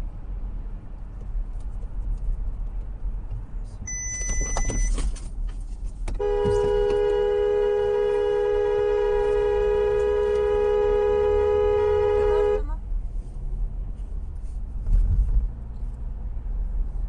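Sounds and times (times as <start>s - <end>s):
road rumble inside car: 0.0s - 17.0s
short electronic beep: 3.9s - 5.0s
dual-tone car horn: 6.2s - 12.8s.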